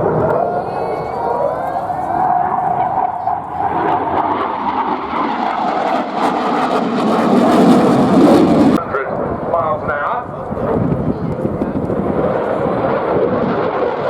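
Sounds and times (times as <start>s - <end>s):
whining tone falling in pitch: 0.0s - 8.8s
jet engines roaring: 0.0s - 14.0s.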